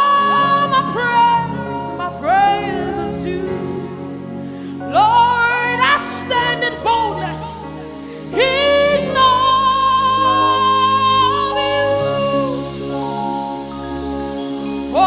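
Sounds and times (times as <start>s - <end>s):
sustained keyboard chords: 0.0s - 15.0s
woman singing wordless phrases: 4.9s - 12.6s.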